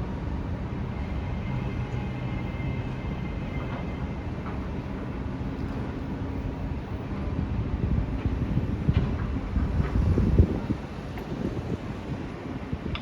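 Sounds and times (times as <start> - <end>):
train wheels rumbling: 7.8 - 13.0.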